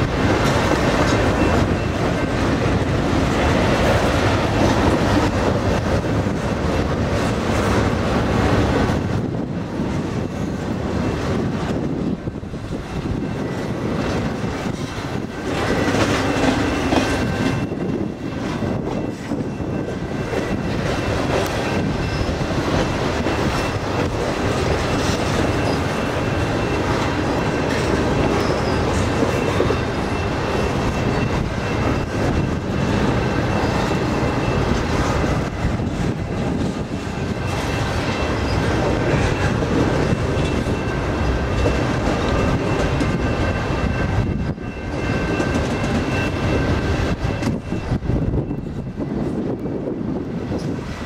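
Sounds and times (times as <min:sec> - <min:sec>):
train wheels rumbling on rails: 0:00.0 - 0:51.0
faint wheel squeal: 0:28.3 - 0:30.3.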